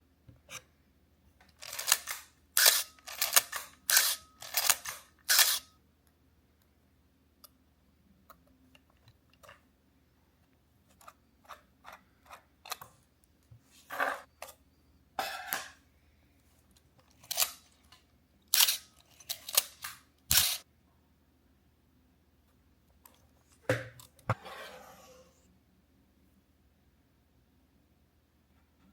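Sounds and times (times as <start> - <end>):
camera shutter clicks: 1.6 - 5.6, 19.5 - 20.6.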